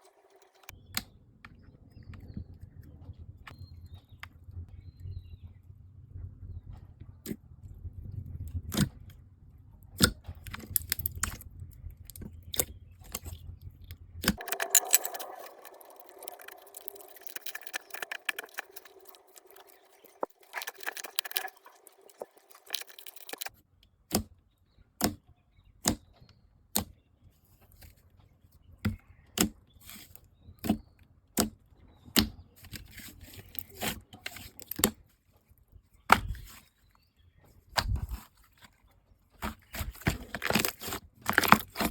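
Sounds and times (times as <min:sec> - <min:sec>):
slime popping and crackling: 0:14.3 - 0:23.5, 0:39.4 - 0:41.9.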